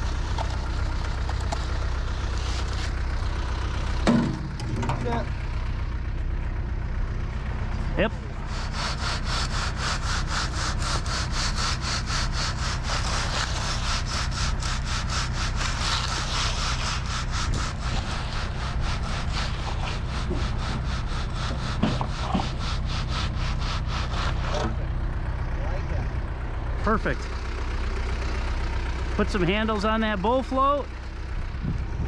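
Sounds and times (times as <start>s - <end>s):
diesel engine idling: 0.0s - 32.0s
wooden board scraping concrete: 8.4s - 24.8s.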